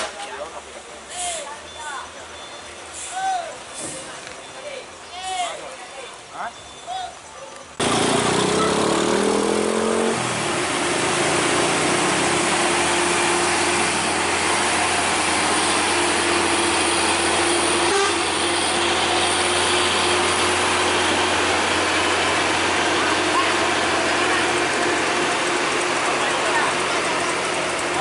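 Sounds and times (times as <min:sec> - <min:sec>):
truck engine humming: 0:07.7 - 0:28.0.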